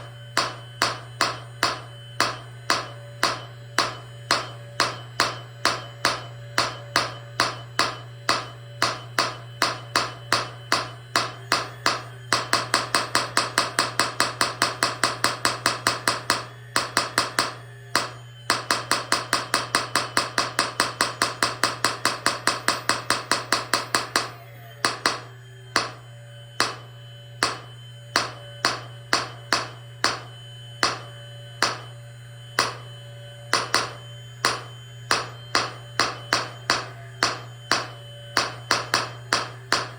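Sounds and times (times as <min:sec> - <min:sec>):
low hum: 0:19.8 - 0:39.9.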